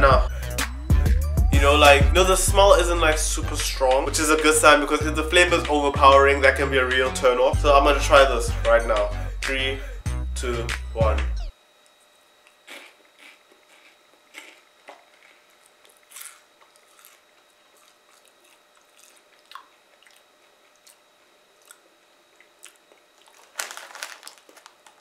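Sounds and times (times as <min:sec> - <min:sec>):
person chewing crunchy snacks: 0:12.5 - 0:25.0.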